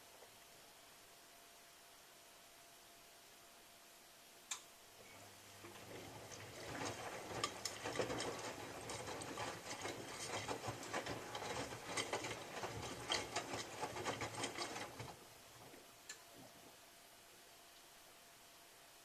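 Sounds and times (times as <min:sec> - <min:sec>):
laundry clicking and rattling: 0:05.7 - 0:15.2.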